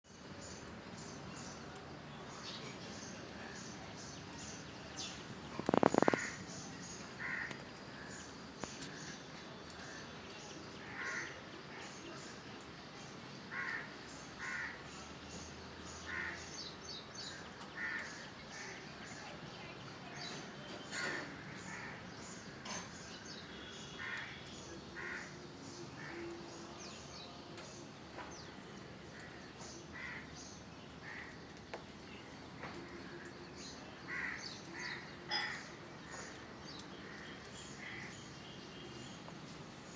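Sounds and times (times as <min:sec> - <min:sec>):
birds calling: 0:02.2 - 0:10.0, 0:16.1 - 0:19.4, 0:27.6 - 0:39.9
loud bird calls: 0:04.5 - 0:09.2.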